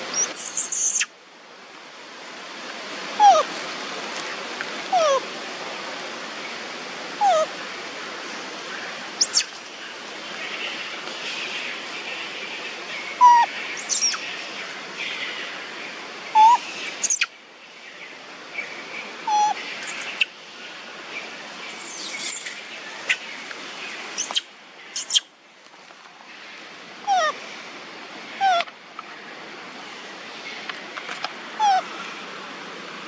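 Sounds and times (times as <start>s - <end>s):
steady outdoor hiss: 0.0s - 33.0s
monkeys squeaking and chirping: 0.1s - 1.1s, 3.2s - 3.5s, 9.2s - 9.5s, 13.2s - 14.2s, 16.4s - 17.3s, 19.3s - 20.3s, 21.7s - 23.2s, 24.2s - 25.2s, 28.4s - 28.7s, 31.6s - 31.9s.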